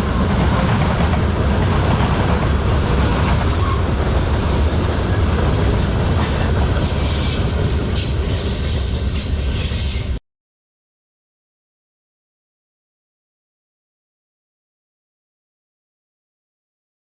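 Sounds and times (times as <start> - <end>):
train wheels clattering on rails: 0.0 - 10.2.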